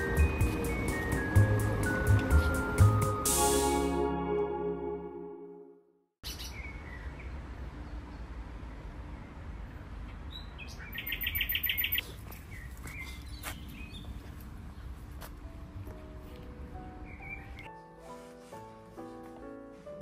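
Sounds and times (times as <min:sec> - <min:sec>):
music: 0:00.0 - 0:06.0, 0:15.2 - 0:20.0
birds chirping: 0:10.1 - 0:15.0, 0:17.0 - 0:17.7.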